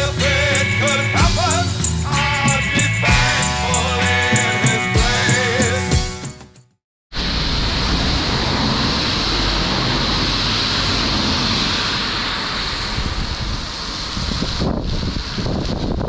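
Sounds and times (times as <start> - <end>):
wind rushing over microphone: 7.4 - 16.0.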